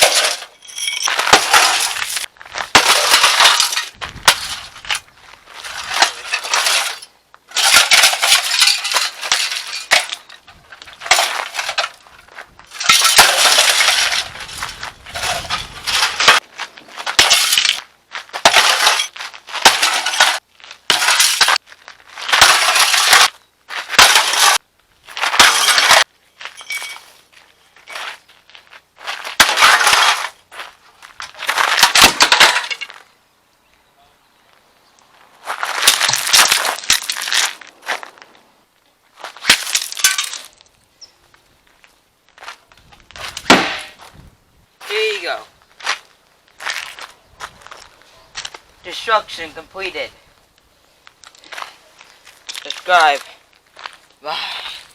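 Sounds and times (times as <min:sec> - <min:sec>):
water heater smashing: 0:00.0 - 0:05.0, 0:05.6 - 0:12.0, 0:12.7 - 0:16.4, 0:17.1 - 0:17.8, 0:18.4 - 0:21.6, 0:22.3 - 0:23.3, 0:23.9 - 0:24.6, 0:25.2 - 0:26.1, 0:29.4 - 0:30.3, 0:31.5 - 0:32.9
debris clinking: 0:00.0 - 0:16.4, 0:17.0 - 0:21.6, 0:22.2 - 0:24.6, 0:25.2 - 0:27.2, 0:29.4 - 0:30.4, 0:31.4 - 0:33.1, 0:39.4 - 0:40.7.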